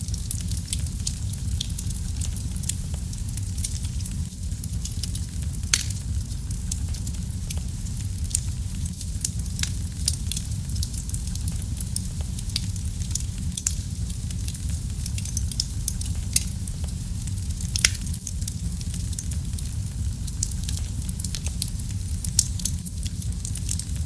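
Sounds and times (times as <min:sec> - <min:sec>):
fireplace fire crackling: 0:00.0 - 0:24.0
loud fire pops: 0:00.1 - 0:24.0.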